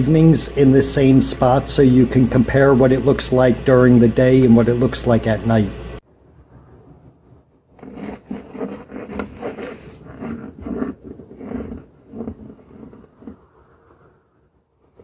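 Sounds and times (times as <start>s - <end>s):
scraping and rubbing: 7.7s - 14.0s.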